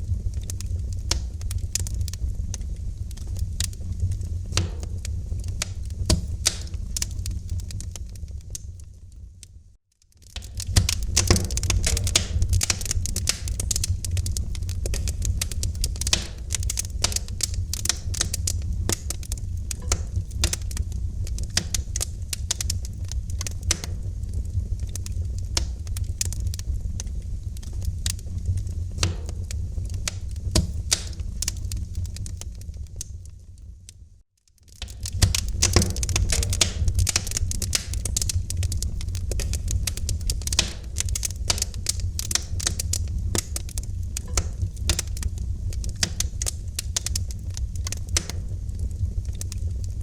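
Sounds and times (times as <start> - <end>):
wood fire crackling: 0.0 - 50.0.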